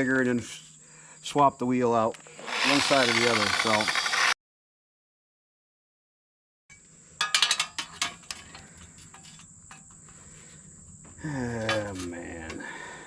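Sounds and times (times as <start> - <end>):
metal blade clanking: 7.2 - 9.8.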